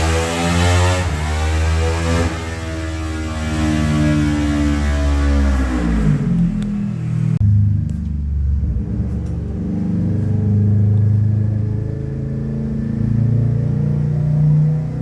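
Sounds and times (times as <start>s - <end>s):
motorcycle engine running: 6.2s - 14.1s.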